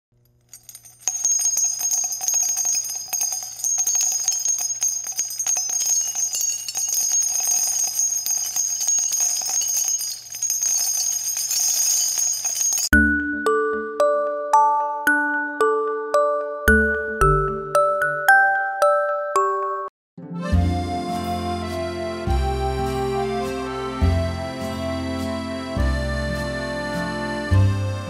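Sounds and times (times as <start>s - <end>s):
jingle bells shaken: 0.5s - 12.9s.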